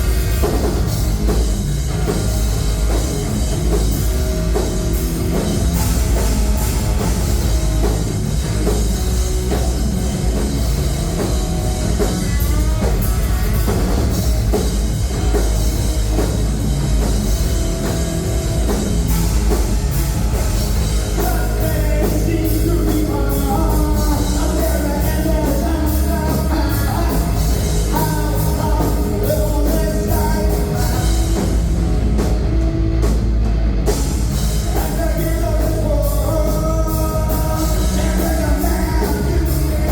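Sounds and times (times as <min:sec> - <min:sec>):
drum kit: 0:00.0 - 0:39.9
rock band playing live: 0:00.0 - 0:39.9
person singing: 0:21.1 - 0:31.3, 0:34.6 - 0:39.9.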